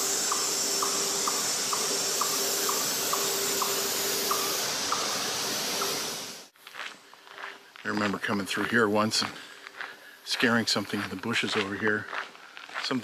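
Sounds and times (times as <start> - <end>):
bird calling: 0.0 - 6.3
steady hiss: 0.0 - 13.0.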